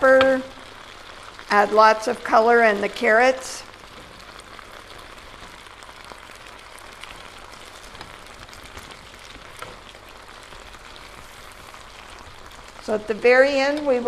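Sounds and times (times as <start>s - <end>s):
stir fry sizzling: 0.0s - 14.0s.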